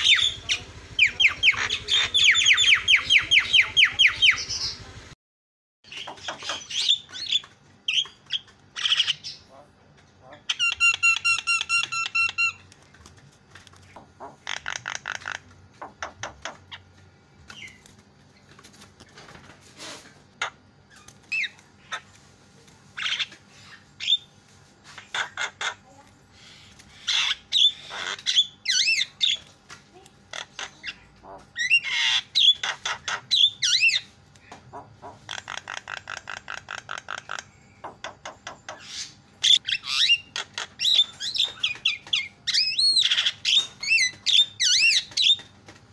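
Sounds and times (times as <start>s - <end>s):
bird rattling calls: 0.0s - 4.8s, 13.8s - 16.9s, 34.7s - 45.5s
myna squawking and whistling: 0.0s - 4.8s.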